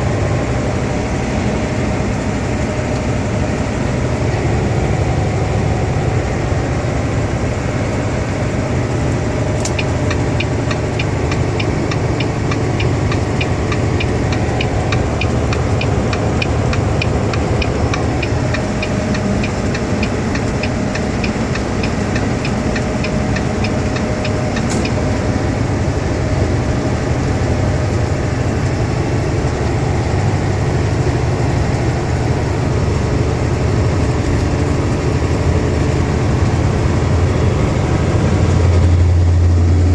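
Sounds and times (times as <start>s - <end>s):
truck engine and road drone: 0.0s - 39.9s
regular ticking: 9.5s - 25.2s
sharp click: 9.6s - 11.1s.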